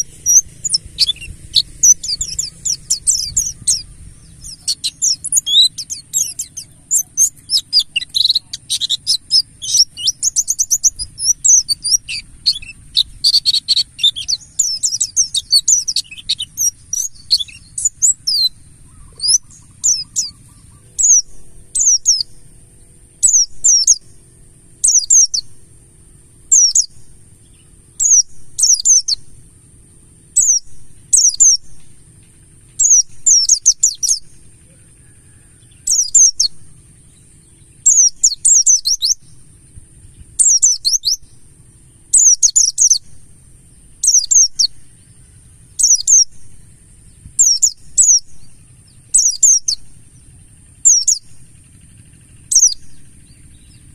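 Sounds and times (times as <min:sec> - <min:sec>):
bird singing high twitter and chirps: 0:00.0 - 0:53.9.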